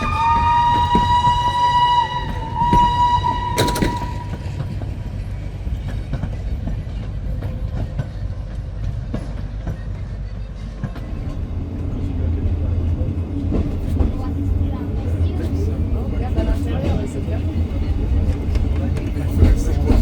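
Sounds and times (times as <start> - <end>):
locomotive whistle blasts: 0.0 - 4.6
train wheels clicking: 0.0 - 10.0, 13.4 - 20.0
train rumbling past: 0.0 - 20.0.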